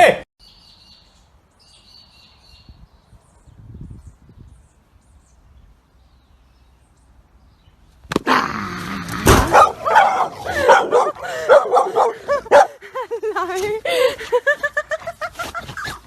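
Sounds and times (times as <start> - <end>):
thump: 9.2 - 9.6
dog barking and yelping: 9.4 - 12.8.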